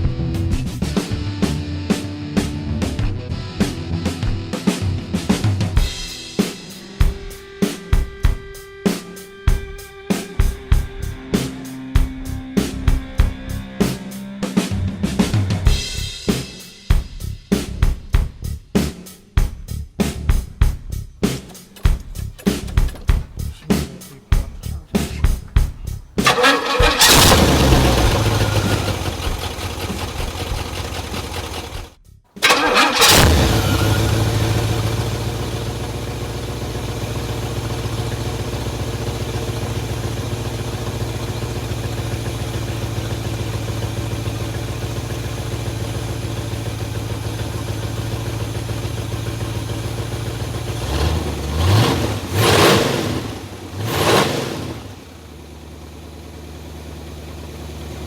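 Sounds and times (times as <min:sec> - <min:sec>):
car engine starting and revving: 0:21.2 - 0:58.0
engine idling: 0:21.2 - 0:58.0
engine throttle blips: 0:21.2 - 0:58.0.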